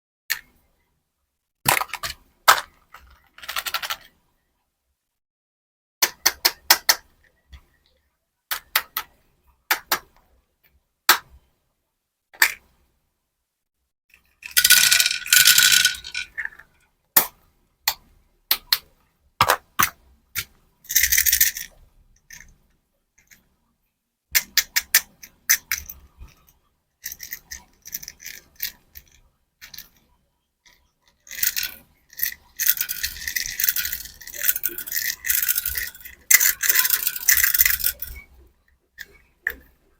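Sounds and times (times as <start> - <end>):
hard candies clicking: 14.4 - 16.5, 31.3 - 38.2.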